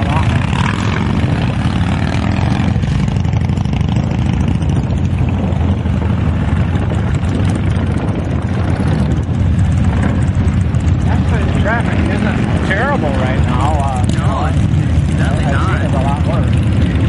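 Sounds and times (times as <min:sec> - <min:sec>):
motorcycle engines rumbling: 0:00.0 - 0:17.0.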